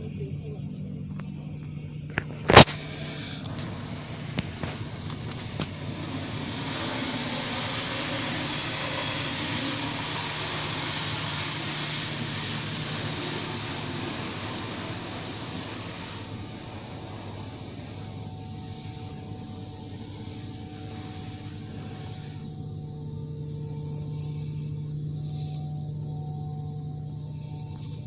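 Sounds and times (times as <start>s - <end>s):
low steady hum: 0.0s - 28.0s
water spray hissing: 2.6s - 24.4s.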